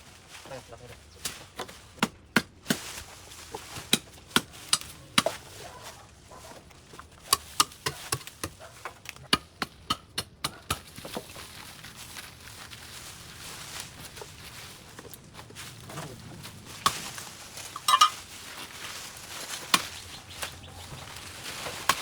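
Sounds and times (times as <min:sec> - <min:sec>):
hand tool chopping overgrowth: 0:01.2 - 0:05.7, 0:06.9 - 0:11.5, 0:15.9 - 0:22.0.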